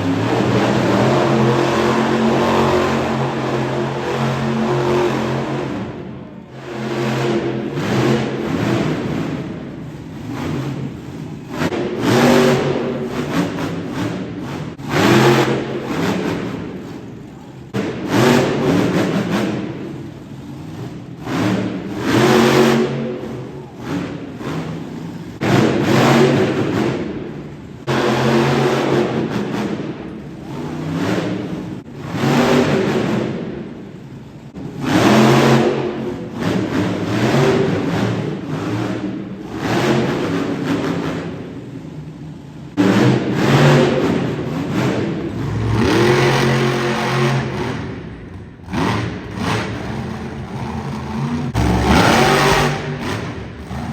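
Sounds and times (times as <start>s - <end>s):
truck engine revving: 0.0s - 53.9s.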